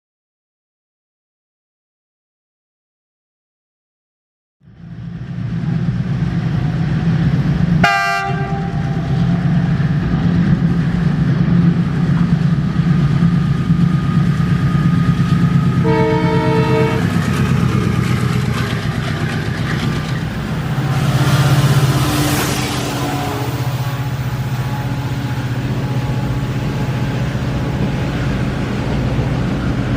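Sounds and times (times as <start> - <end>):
locomotive engine drone: 4.6 - 29.9
wheels rushing on rail: 4.6 - 29.9
train horn blast: 7.8 - 9.4, 15.8 - 17.2, 20.6 - 25.0.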